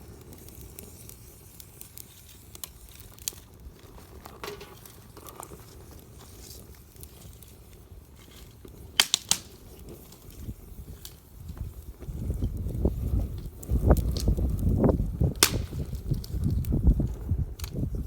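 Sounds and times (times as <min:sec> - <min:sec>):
campfire crackling: 0:00.0 - 0:18.0
sharp loud pops: 0:15.4 - 0:16.0.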